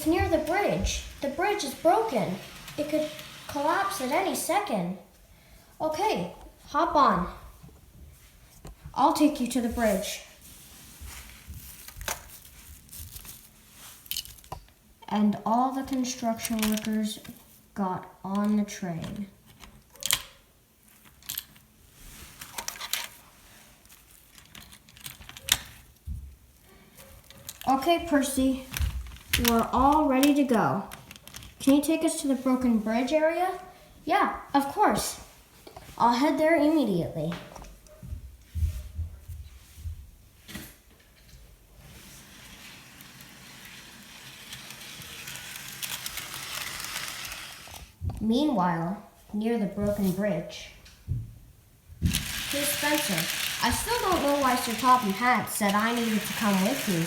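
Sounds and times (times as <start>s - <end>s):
model train wheels rattling: 0.0s - 4.5s, 42.4s - 47.9s, 52.1s - 57.0s
electric motor hum: 43.2s - 47.9s, 52.1s - 57.0s.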